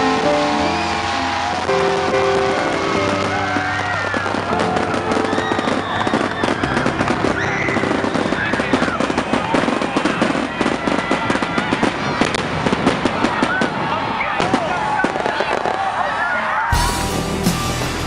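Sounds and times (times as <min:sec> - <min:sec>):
music: 0:00.0 - 0:11.8, 0:16.7 - 0:18.0
fireworks bursting and crackling: 0:00.0 - 0:18.0.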